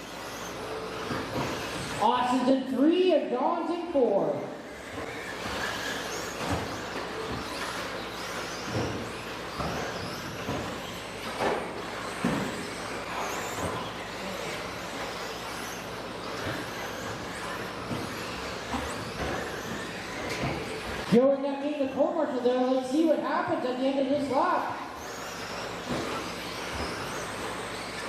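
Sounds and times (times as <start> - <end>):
tyre and track noise: 0.0 - 2.5, 4.7 - 22.8
high electric motor whines: 0.0 - 28.0.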